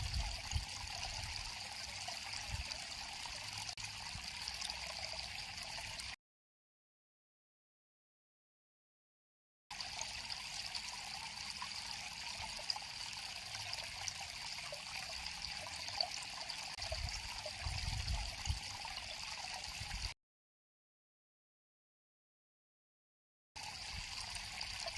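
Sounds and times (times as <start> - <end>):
river water flowing: 0.0 - 6.2, 9.7 - 17.7.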